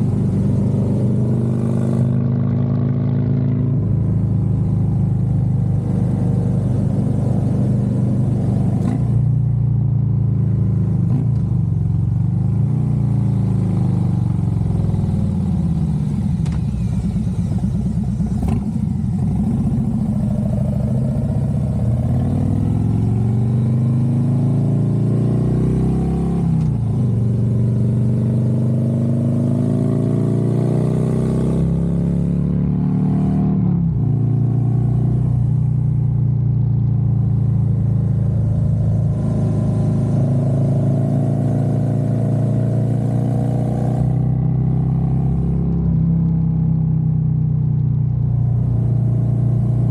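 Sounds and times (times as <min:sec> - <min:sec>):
motorcycle engine running: 0:00.0 - 0:32.2.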